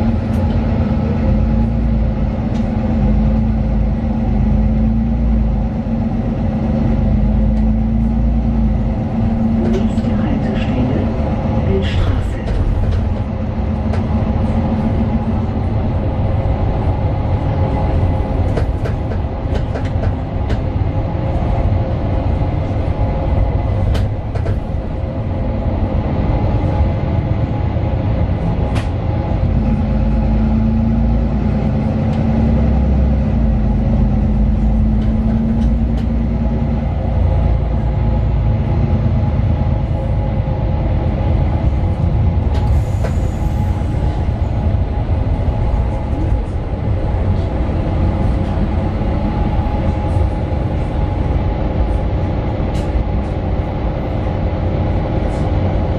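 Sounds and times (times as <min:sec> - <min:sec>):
bus engine rumble and whine: 0:00.0 - 0:55.9.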